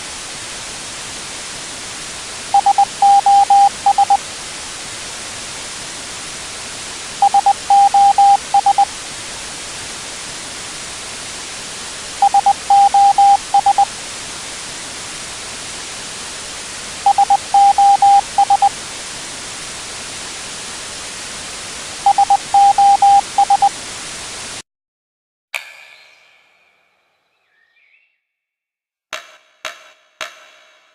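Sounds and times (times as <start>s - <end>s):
static hiss: 0.0s - 24.6s
short electronic beeps: 2.6s - 4.2s, 7.2s - 8.9s, 12.2s - 13.9s, 17.1s - 18.7s, 22.1s - 23.7s.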